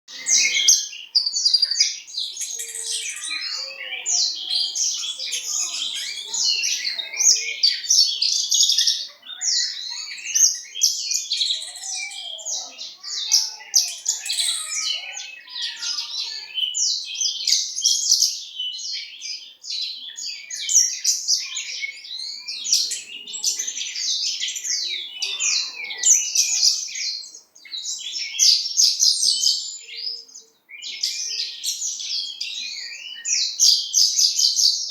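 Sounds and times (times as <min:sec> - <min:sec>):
lark singing warbling song: 0:00.1 - 0:07.9, 0:11.6 - 0:16.8.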